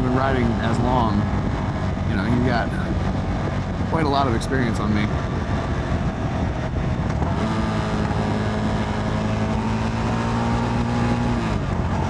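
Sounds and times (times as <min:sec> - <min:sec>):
wind rush: 0:00.0 - 0:12.0
motorcycle engine running: 0:05.0 - 0:12.0.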